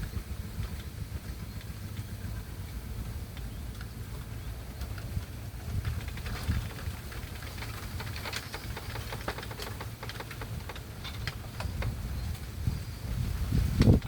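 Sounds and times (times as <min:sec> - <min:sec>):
hand tractor engine running: 0:00.0 - 0:13.1
sharp clicks: 0:04.8 - 0:12.4.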